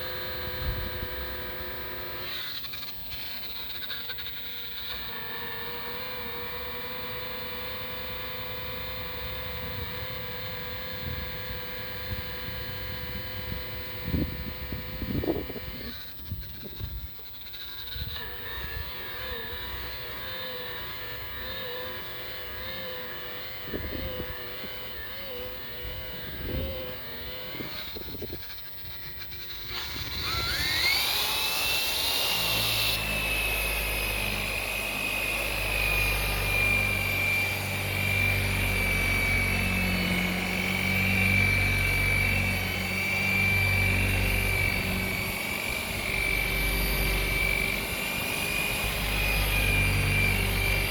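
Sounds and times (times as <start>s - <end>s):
rotary buffer whining: 0.0s - 50.9s.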